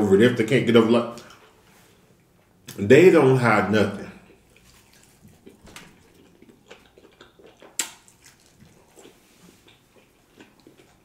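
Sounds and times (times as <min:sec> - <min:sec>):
chewing pizza crust: 0:04.1 - 0:11.0.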